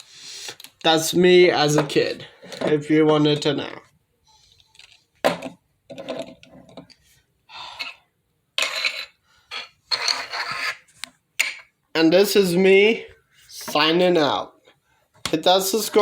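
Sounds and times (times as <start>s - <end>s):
objects scraping on surface: 8.6s - 11.6s.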